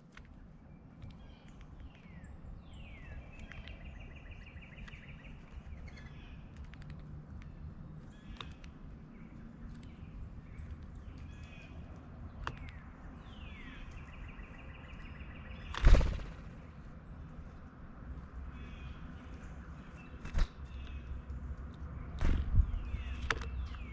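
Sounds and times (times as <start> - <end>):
light taps and clicks: 0.0 - 2.3, 3.2 - 4.0, 6.4 - 13.0, 23.1 - 23.9.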